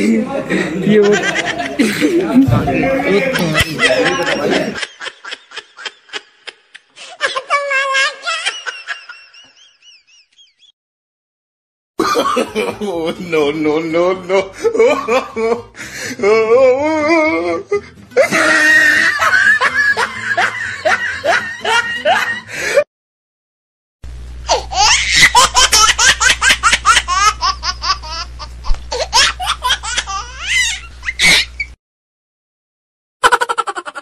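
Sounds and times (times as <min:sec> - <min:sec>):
loud hearty laughter: 0:00.8 - 0:02.5, 0:03.1 - 0:10.7, 0:12.0 - 0:13.2, 0:14.2 - 0:15.7, 0:18.2 - 0:22.8, 0:24.7 - 0:28.3, 0:33.2 - 0:34.0
steady low hum: 0:24.1 - 0:31.7.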